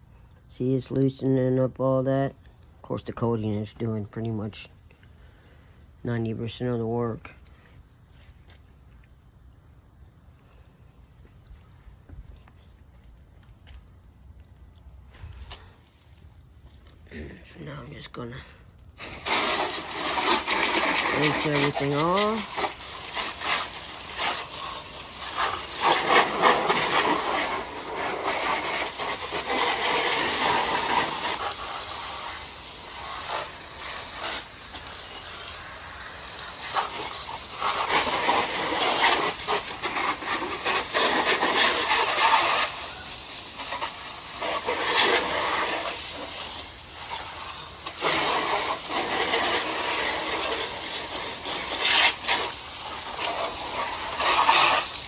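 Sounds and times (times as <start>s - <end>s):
water spraying onto motorcycle: 18.8s - 55.0s.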